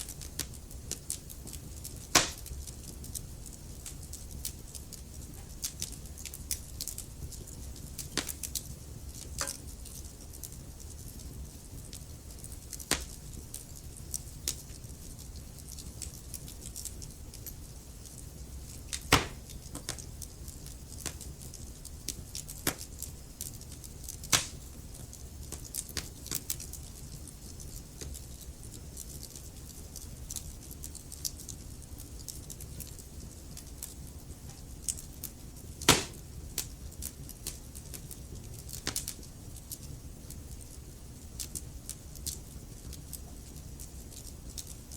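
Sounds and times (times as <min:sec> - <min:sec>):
loud fire pops: 0:00.0 - 0:03.2, 0:07.4 - 0:10.0, 0:11.8 - 0:13.2, 0:18.9 - 0:20.1, 0:24.2 - 0:24.8, 0:35.8 - 0:38.0
wood fire crackling: 0:00.0 - 0:44.9.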